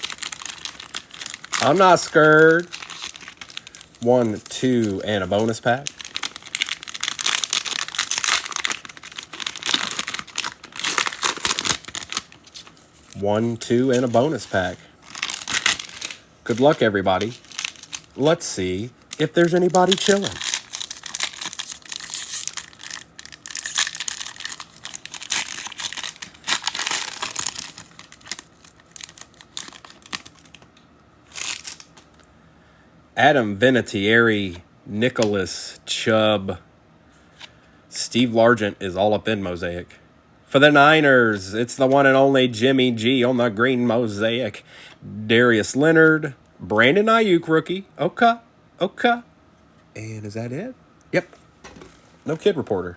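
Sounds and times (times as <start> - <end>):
cellophane wrappers crinkling: 0.0 - 32.3.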